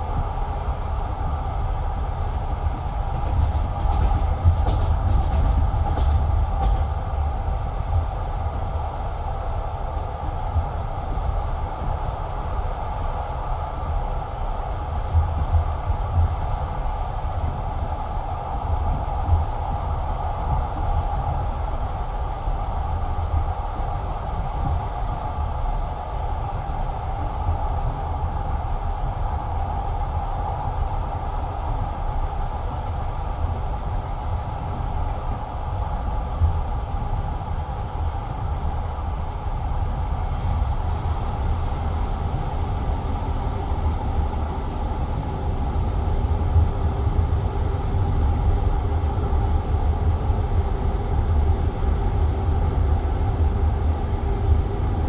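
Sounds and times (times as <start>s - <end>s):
train wheels rumbling on rails: 0.0s - 55.0s
train wheel knocks: 3.1s - 7.5s.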